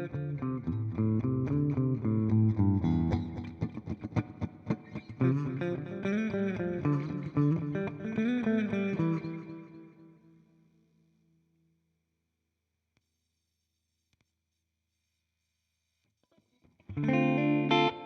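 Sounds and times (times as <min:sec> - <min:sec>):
electric guitar with delay: 0:00.0 - 0:10.3, 0:16.9 - 0:18.0.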